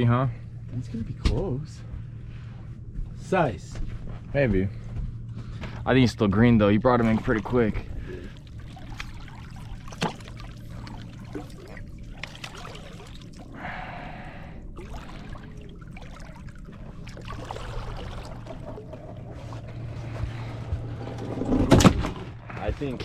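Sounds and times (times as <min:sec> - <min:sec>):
low steady hum: 0:00.0 - 0:23.0
water trickling and splashing: 0:06.5 - 0:20.6.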